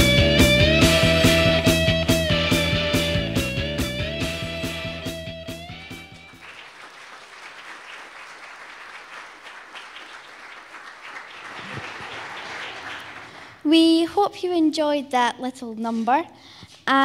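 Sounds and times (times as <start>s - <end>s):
song with a steady beat: 0.0s - 6.3s
audience applauding: 0.8s - 2.0s, 5.6s - 13.7s.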